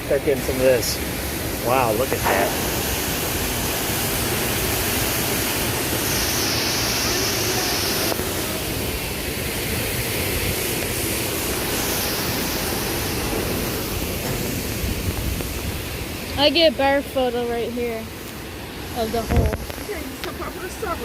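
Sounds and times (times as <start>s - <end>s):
waterfall rushing: 0.0s - 21.0s
thin high hiss: 1.7s - 16.5s.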